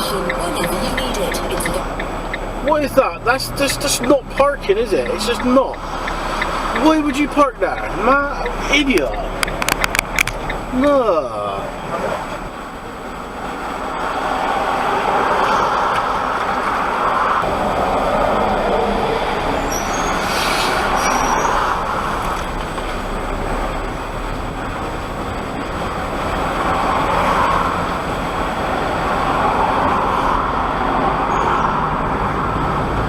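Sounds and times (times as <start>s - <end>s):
truck engine and road noise: 0.0s - 33.0s
brief hiss: 20.0s - 21.6s.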